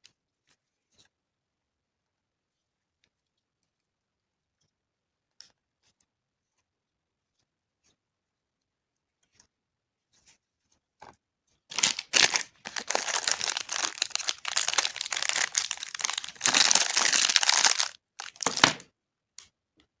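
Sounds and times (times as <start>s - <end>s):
wrapper crinkling and tearing: 11.7s - 18.8s.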